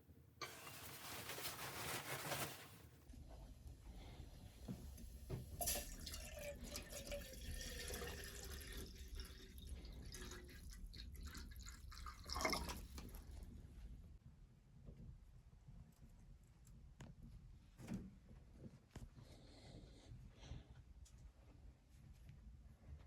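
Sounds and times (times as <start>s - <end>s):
water dripping and trickling: 5.5s - 13.3s.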